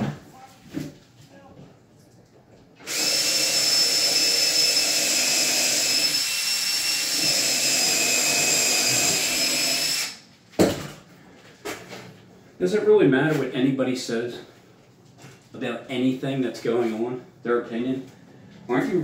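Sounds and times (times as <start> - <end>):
power drill whining: 2.8 - 10.2.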